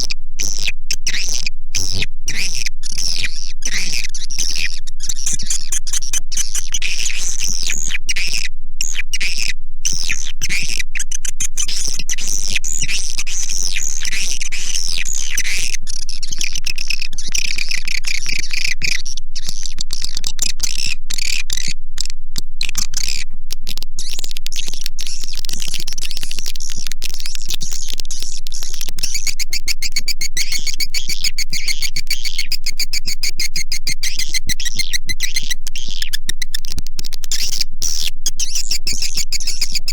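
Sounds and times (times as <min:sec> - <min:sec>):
steady low hum: 0:00.0 - 0:39.9
swiftlet chirps and trills: 0:24.0 - 0:39.9.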